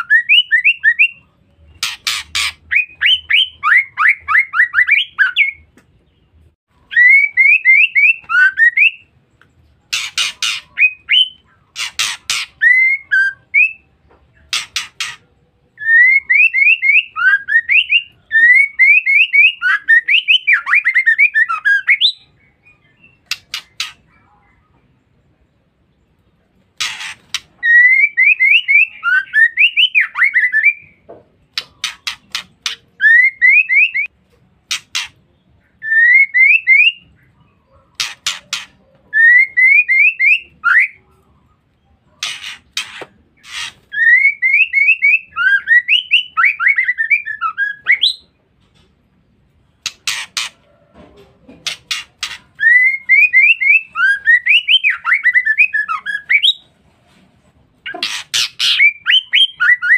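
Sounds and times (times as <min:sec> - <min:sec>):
bird chattering notes: 0:00.0 - 0:05.7, 0:09.9 - 0:13.5, 0:14.4 - 0:15.3, 0:19.6 - 0:24.4, 0:26.8 - 0:30.4, 0:31.5 - 0:35.8, 0:36.4 - 0:40.7, 0:42.2 - 0:45.7, 0:49.8 - 0:50.7, 0:57.8 - 0:59.9
harsh rasping bird calls: 0:00.0 - 0:24.8, 0:26.5 - 0:48.9, 0:49.6 - 0:51.0, 0:51.6 - 0:56.7, 0:57.8 - 0:59.9.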